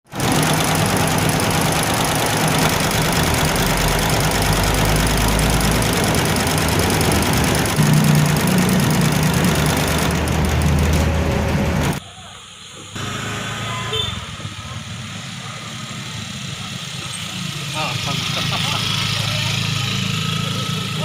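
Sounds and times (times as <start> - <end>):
vehicle engine humming: 0.1 - 21.0
steady rush of noise: 7.3 - 21.0.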